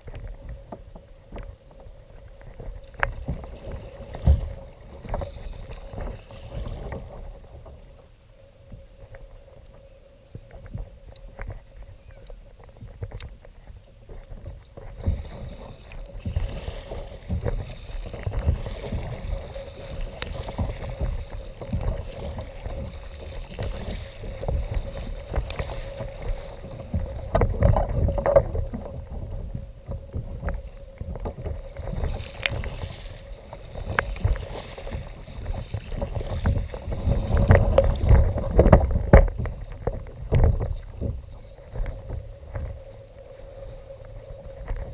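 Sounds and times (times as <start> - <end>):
faint steady tone: 0.0 - 16.7
water sloshing around hull: 0.0 - 44.9
wind on microphone: 0.0 - 44.9.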